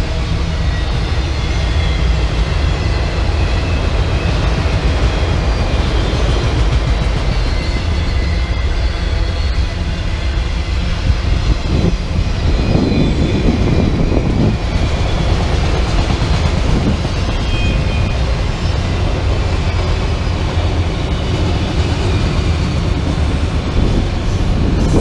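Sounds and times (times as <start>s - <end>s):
freight train wheels rumbling on rails: 0.0s - 25.0s
high-pitched wheel squeals: 7.2s - 10.5s, 11.4s - 15.2s, 16.8s - 22.2s.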